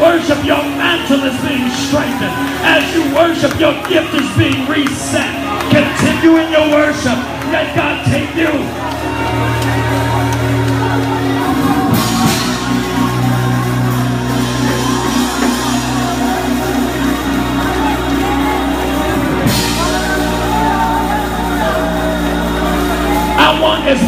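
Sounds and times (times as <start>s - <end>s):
sustained keyboard chords: 0.0s - 24.0s.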